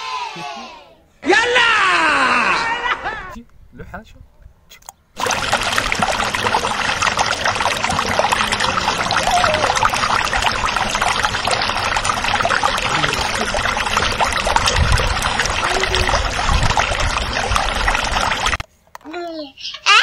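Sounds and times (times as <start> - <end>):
water splashing in bucket: 5.2 - 18.6.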